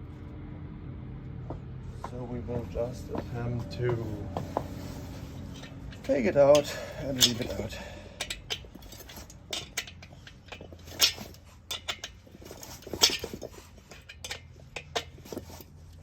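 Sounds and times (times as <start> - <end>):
metal tools clinking on metal: 5.2 - 16.0.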